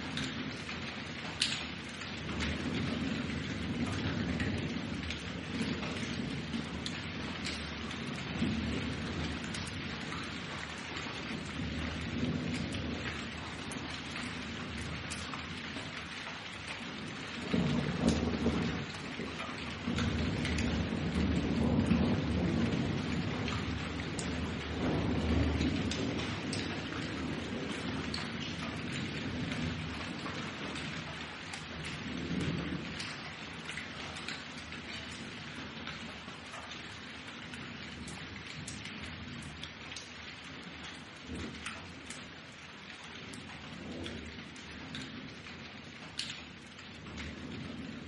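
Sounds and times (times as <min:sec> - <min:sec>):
rolling thunder: 0:00.0 - 0:16.1, 0:16.9 - 0:36.2
raindrops pattering on a surface: 0:00.0 - 0:48.0
heavy rain hissing: 0:19.7 - 0:33.7.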